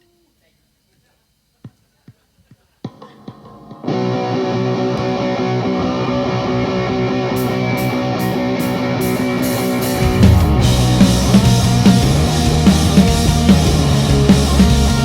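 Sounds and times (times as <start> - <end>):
electric guitar chords: 3.2 - 15.0
rock band playing: 3.2 - 15.0
cymbal hits: 9.5 - 13.0.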